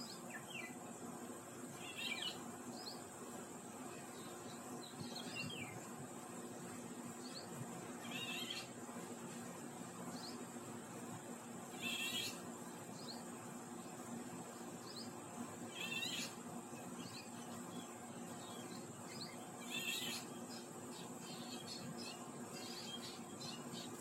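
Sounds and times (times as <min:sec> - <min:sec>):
faint bird chirps: 0:11.8 - 0:12.4, 0:15.7 - 0:16.4, 0:17.0 - 0:24.0.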